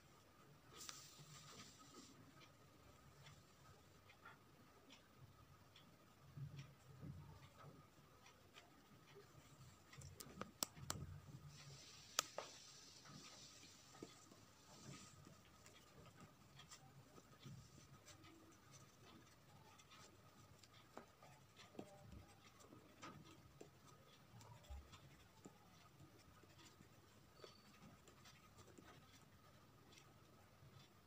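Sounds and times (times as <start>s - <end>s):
pencil scratching on paper: 11.7s - 31.0s.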